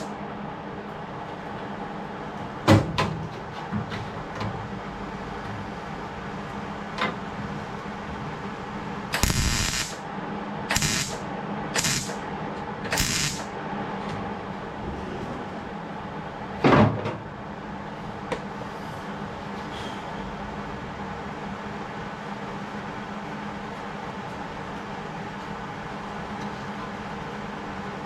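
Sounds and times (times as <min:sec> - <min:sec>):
steady background hum: 0:00.0 - 0:28.0
short hissing bursts: 0:09.2 - 0:10.0, 0:10.7 - 0:11.2, 0:11.8 - 0:12.2, 0:13.0 - 0:13.4.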